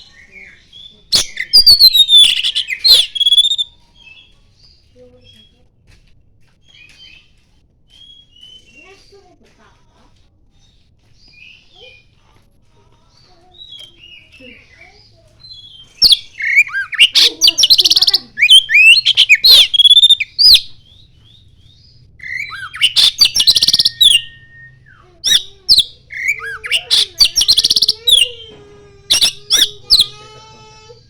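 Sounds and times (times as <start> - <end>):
bird singing varied whistles: 16.0 - 20.6, 22.2 - 28.0.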